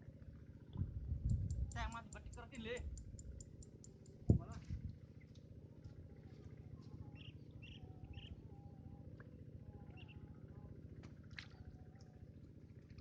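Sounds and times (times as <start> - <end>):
low outdoor hum: 0.0 - 13.0
small birds chirping: 1.2 - 4.6, 7.0 - 8.7, 9.8 - 10.3.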